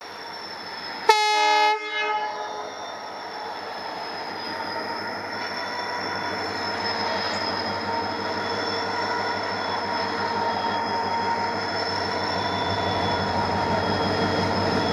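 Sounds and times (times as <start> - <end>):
locomotive engine hum and whine: 0.0 - 14.9
locomotive horn blast: 1.1 - 2.6.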